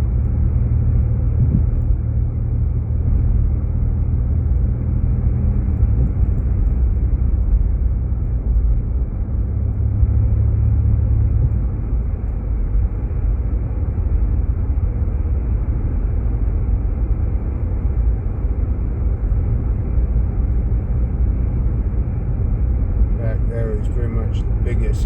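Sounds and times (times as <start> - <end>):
car engine and tyres rumbling: 0.0 - 25.0.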